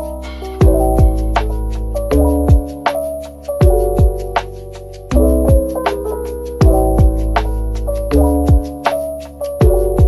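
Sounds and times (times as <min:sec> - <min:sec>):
kick drum: 0:00.6 - 0:01.3, 0:02.5 - 0:02.7, 0:03.6 - 0:04.2, 0:05.5 - 0:05.8, 0:06.6 - 0:07.2, 0:08.5 - 0:08.7.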